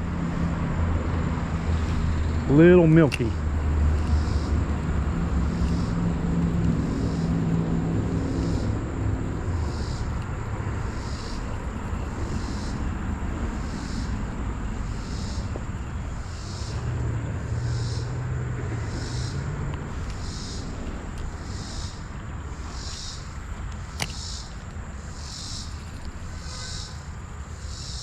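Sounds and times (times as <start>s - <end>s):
distant engine hum: 0.0s - 28.0s
flowing creek water: 0.6s - 27.5s.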